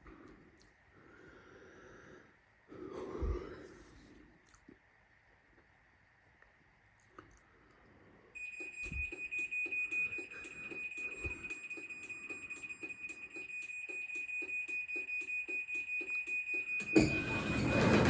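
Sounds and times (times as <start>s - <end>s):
garage door opener beeping: 8.4s - 18.0s.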